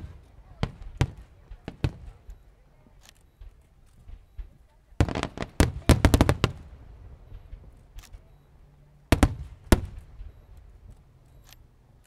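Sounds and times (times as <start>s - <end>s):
fireworks bangs: 0.0s - 2.3s, 3.3s - 8.3s, 9.1s - 10.8s
low rumbling echo: 5.0s - 10.9s.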